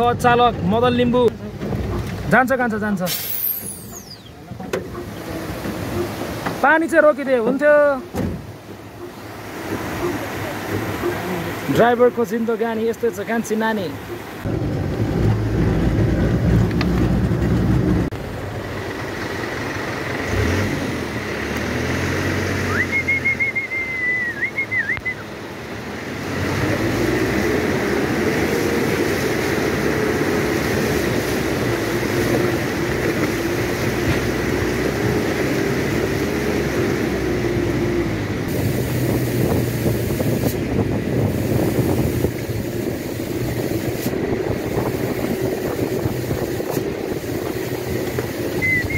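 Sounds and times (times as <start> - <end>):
road rattle: 0.0 - 48.9
truck engine running under load: 14.0 - 25.1, 25.8 - 48.9
wavering engine whine: 43.4 - 48.9.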